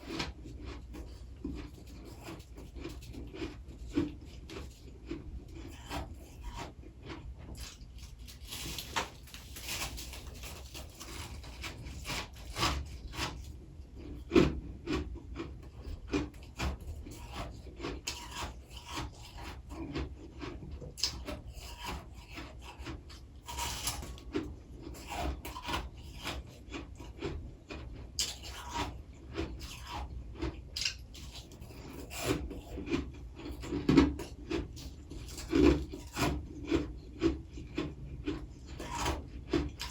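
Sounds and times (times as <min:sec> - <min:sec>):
frost being scraped: 0:00.0 - 0:13.5, 0:16.6 - 0:19.8, 0:21.2 - 0:27.1, 0:31.2 - 0:36.9
frost being chewed: 0:00.0 - 0:39.9.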